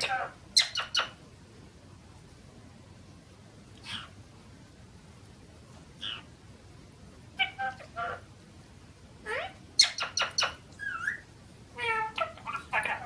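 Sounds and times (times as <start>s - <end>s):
parrot squawks: 0.0s - 1.2s, 6.0s - 6.3s, 7.4s - 8.3s, 9.3s - 11.2s, 11.8s - 13.0s.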